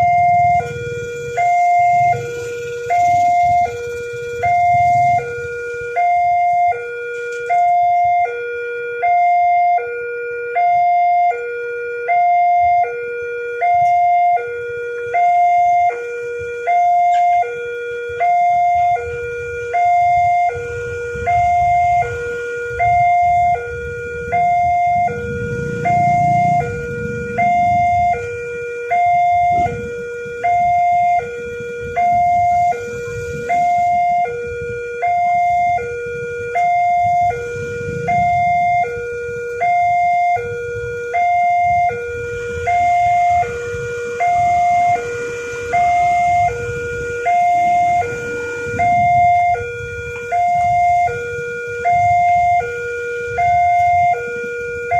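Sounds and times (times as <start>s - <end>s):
level crossing two-tone alarm: 0.0s - 54.9s
low rumble: 18.7s - 54.0s.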